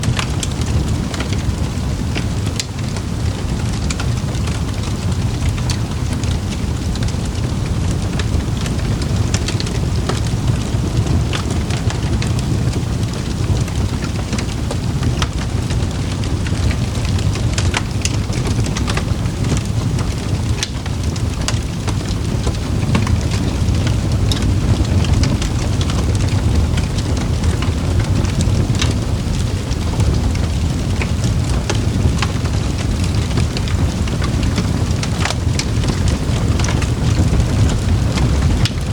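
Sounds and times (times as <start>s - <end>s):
steady rain: 0.0s - 38.9s
wood fire crackling: 0.0s - 38.9s.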